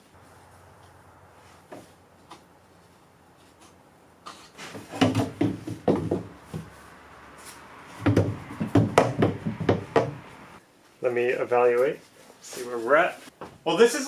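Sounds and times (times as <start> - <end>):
plastic pipe knocking and clattering: 4.9 - 6.7, 8.0 - 10.2.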